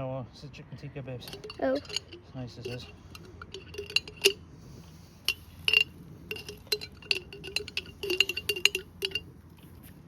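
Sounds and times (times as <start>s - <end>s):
spoon clinking against a bowl: 5.3s - 9.3s.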